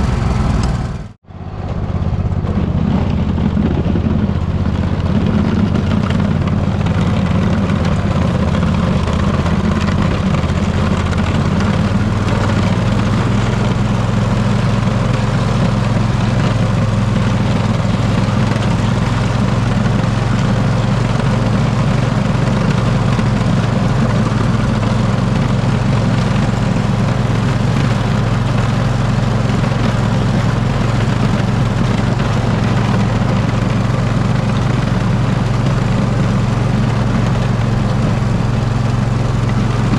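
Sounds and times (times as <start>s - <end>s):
riding mower engine running: 0.0s - 39.9s.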